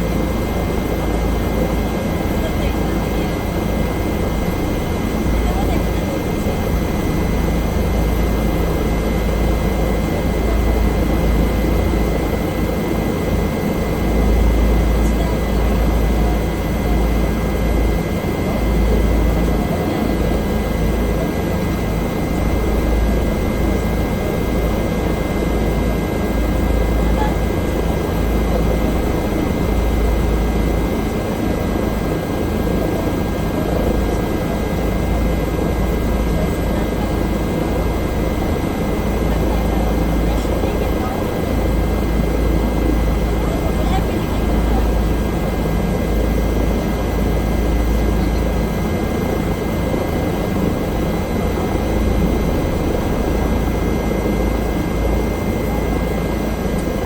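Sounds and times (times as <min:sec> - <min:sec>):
helicopter rotor and engine rumble: 0:00.0 - 0:57.0.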